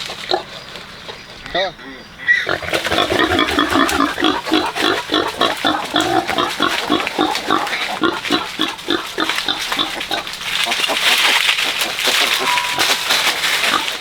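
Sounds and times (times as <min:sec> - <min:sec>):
pigs grunting: 0:00.0 - 0:14.0.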